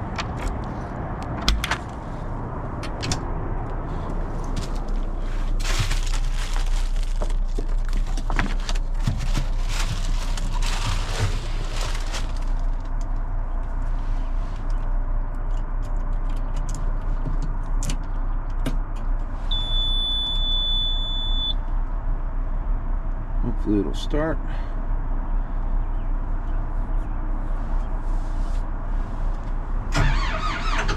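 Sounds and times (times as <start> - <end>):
clattering and handling noises: 4.1 - 13.2
engine idling: 21.6 - 30.9.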